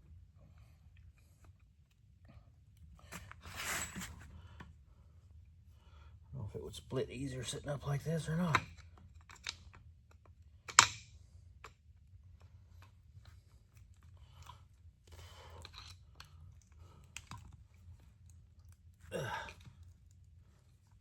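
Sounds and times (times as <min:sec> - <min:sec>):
person grunting: 0:19.1 - 0:19.6.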